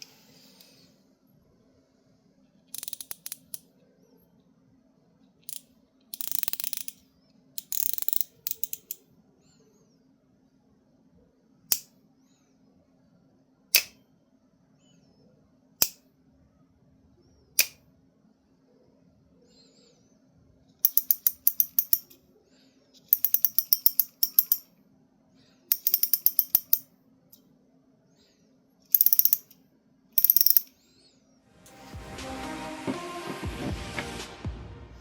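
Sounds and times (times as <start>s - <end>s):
fishing reel clicking: 2.8s - 3.6s, 6.2s - 7.0s, 7.6s - 9.0s, 20.9s - 22.1s, 23.2s - 24.6s, 25.7s - 26.8s, 28.9s - 29.5s, 30.2s - 30.7s
sharp snaps: 13.8s - 14.0s, 17.6s - 17.8s.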